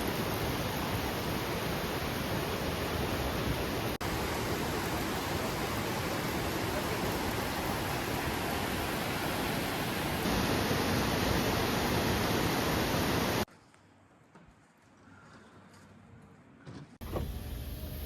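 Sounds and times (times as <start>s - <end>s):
waterfall rushing: 0.0s - 13.5s.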